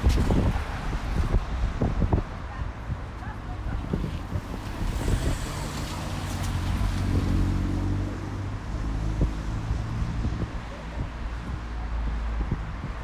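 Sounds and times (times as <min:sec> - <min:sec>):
background traffic: 0:00.0 - 0:13.0
vehicle engine hum passing: 0:03.4 - 0:10.4.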